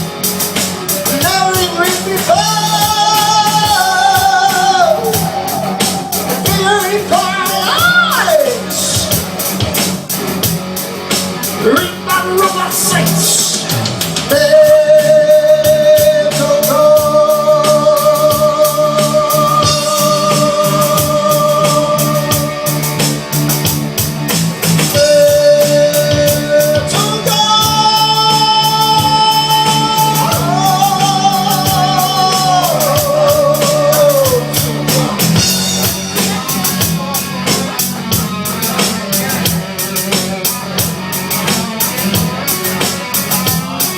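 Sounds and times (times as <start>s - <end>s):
live heavy metal band: 0.0s - 43.9s
singer holding high notes: 2.3s - 9.2s.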